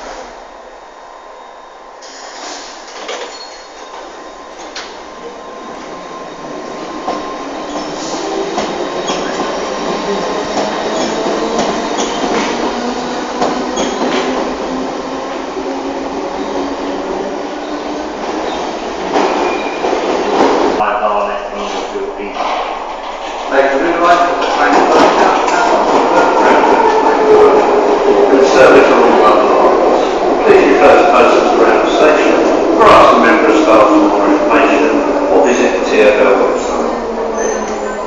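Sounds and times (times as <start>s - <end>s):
train running on rails: 0.0s - 38.0s
rail joint clicks: 2.0s - 5.4s, 6.9s - 15.5s, 21.6s - 27.2s, 35.1s - 38.0s
steel wheels squealing: 3.2s - 4.7s, 7.6s - 12.6s, 13.7s - 14.3s, 19.3s - 19.9s, 37.4s - 38.0s.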